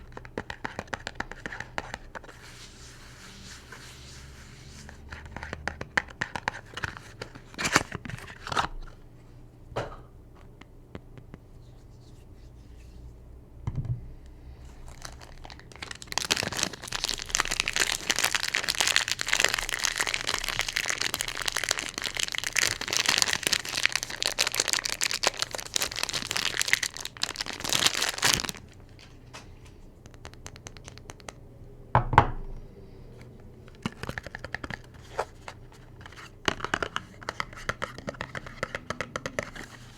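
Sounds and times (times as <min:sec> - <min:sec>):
wrapping torn and crinkled: 0:14.7 - 0:29.3.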